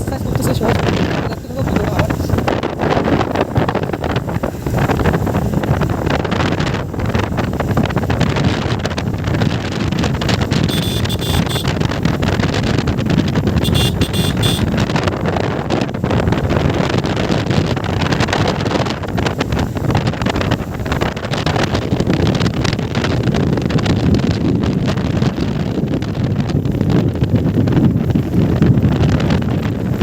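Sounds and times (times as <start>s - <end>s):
road noise: 0.0s - 30.0s
wind buffeting microphone: 0.0s - 30.0s
high rapidly pulsing tone: 10.7s - 11.7s, 13.6s - 14.7s.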